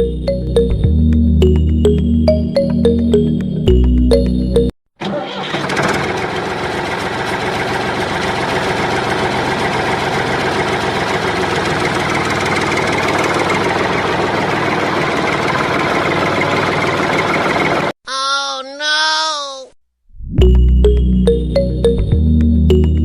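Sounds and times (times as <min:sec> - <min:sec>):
small motor rattling: 0:05.5 - 0:17.9.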